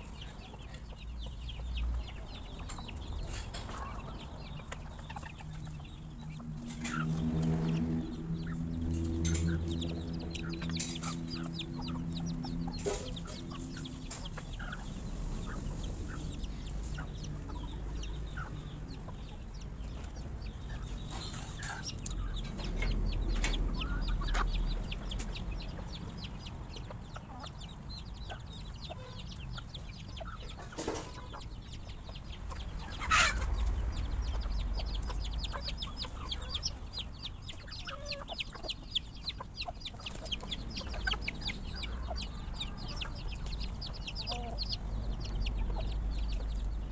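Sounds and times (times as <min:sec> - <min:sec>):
chickens clucking: 0:00.0 - 0:46.9
low droning hum: 0:05.5 - 0:26.3.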